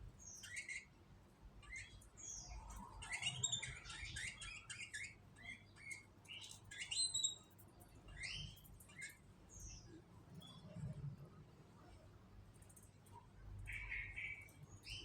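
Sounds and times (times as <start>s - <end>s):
canaries chirping: 0.2s - 1.0s, 1.6s - 10.6s, 13.6s - 15.0s.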